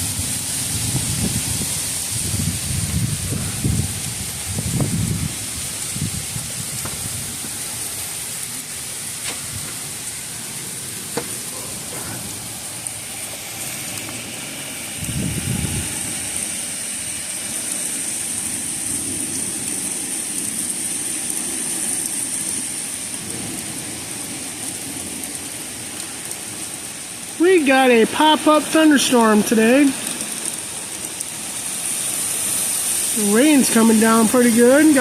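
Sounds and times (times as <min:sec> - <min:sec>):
low thunder rumble: 0:00.0 - 0:12.9, 0:14.9 - 0:16.7, 0:18.4 - 0:28.0
heavy rain falling: 0:00.0 - 0:35.0
wind: 0:00.0 - 0:35.0
sharp raindrop clicks: 0:17.3 - 0:27.4, 0:29.9 - 0:35.0.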